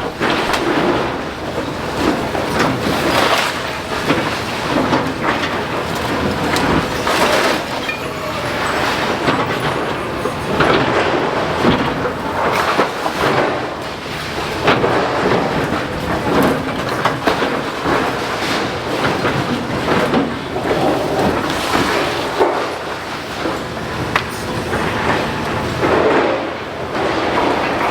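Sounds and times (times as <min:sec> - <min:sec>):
breaking brickwork and falling rubble: 0:00.0 - 0:27.9.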